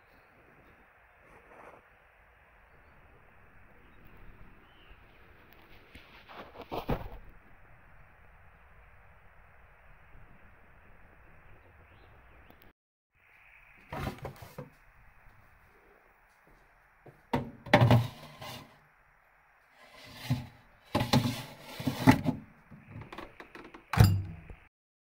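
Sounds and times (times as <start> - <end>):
faint steady hiss: 0.0 - 23.4
thumps and knocks: 17.3 - 18.7, 20.0 - 24.6.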